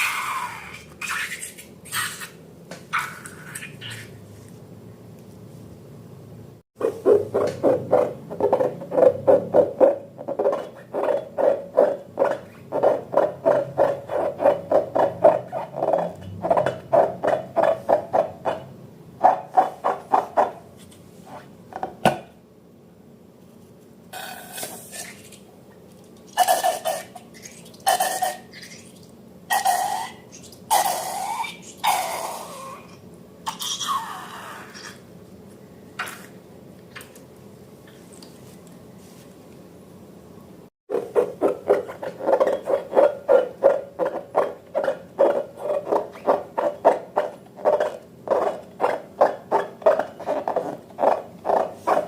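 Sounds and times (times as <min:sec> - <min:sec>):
rubber balloons squeaking: 0:07.0 - 0:17.9, 0:41.0 - 0:52.0.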